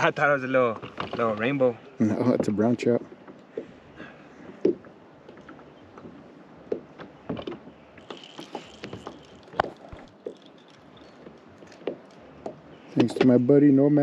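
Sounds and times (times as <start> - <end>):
knocks and clatter on a kayak: 0.0 - 3.8, 4.4 - 13.4
light steady hiss: 7.9 - 13.9.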